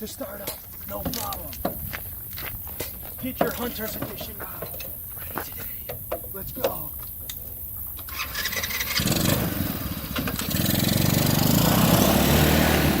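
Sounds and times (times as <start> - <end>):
small engine starting and running: 7.8 - 13.0.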